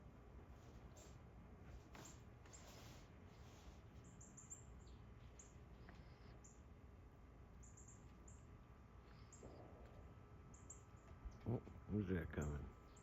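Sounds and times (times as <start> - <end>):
faint high bird chirps: 4.0 - 6.6, 7.6 - 9.8.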